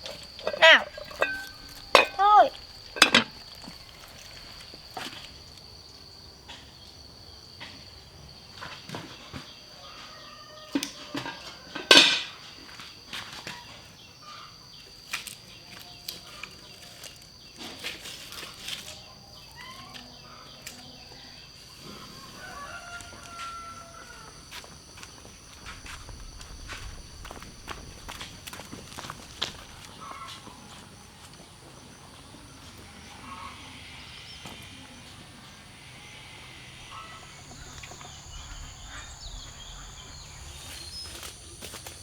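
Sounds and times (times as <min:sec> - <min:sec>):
faint bird calls: 0:00.0 - 0:04.6, 0:32.2 - 0:42.0
steady high-pitched whine: 0:21.4 - 0:42.0.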